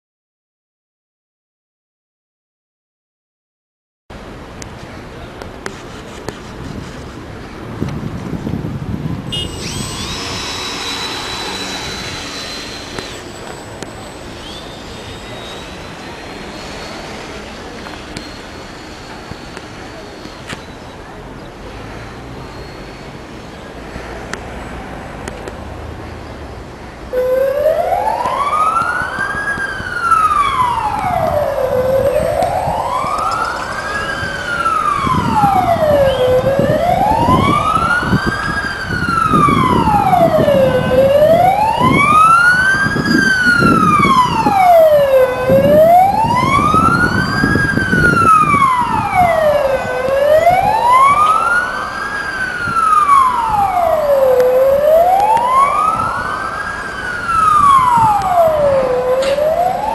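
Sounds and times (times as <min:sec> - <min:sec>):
wailing siren: 0:09.3 - 0:20.1, 0:27.1 - 0:59.9.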